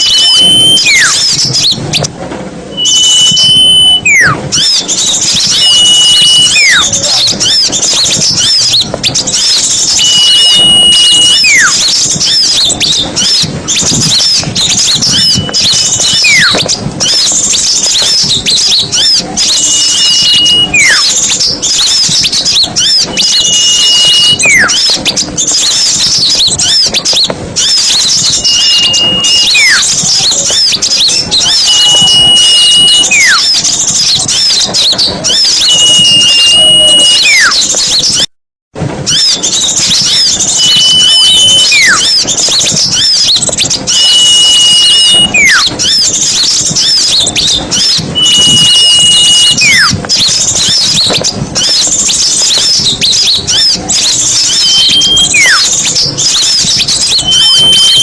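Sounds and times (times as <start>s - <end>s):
high whistle sliding downward: 0.0s - 1.5s, 2.7s - 6.9s, 10.0s - 12.6s, 14.9s - 16.6s, 19.4s - 21.2s, 23.1s - 24.8s, 27.6s - 30.3s, 31.2s - 33.6s, 35.3s - 37.6s, 39.1s - 42.1s, 43.0s - 45.7s, 48.2s - 50.0s, 54.4s - 58.0s
songbirds chirping and trilling: 0.0s - 38.3s, 38.9s - 58.0s.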